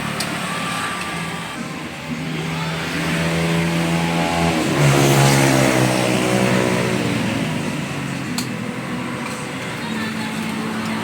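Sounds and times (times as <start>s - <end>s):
vehicle engine passing by: 0.0s - 11.0s.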